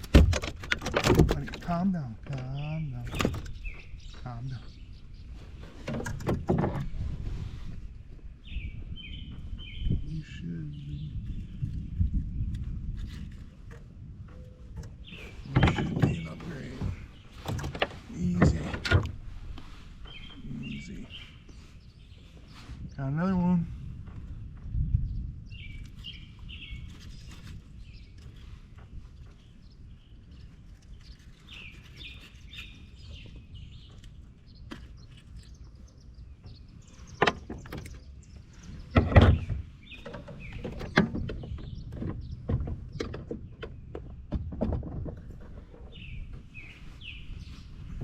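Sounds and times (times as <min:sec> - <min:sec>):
knocks and bumps: 0:00.0 - 0:04.4, 0:05.6 - 0:07.0, 0:13.7 - 0:19.2, 0:38.7 - 0:46.5
songbird chirping: 0:00.0 - 0:48.0.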